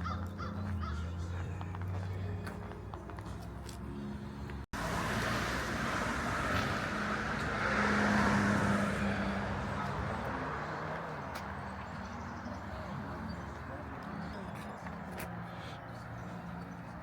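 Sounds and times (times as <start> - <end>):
car driving past: 4.8 - 13.4.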